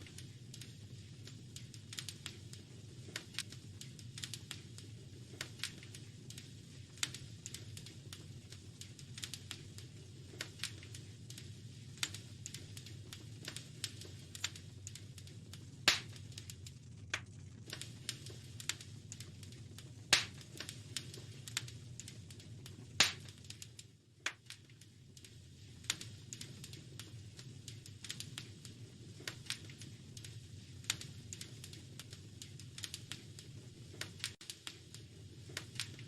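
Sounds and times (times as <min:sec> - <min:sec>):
low steady rumble: 0:00.0 - 0:36.0
wood fire crackling: 0:00.0 - 0:36.0.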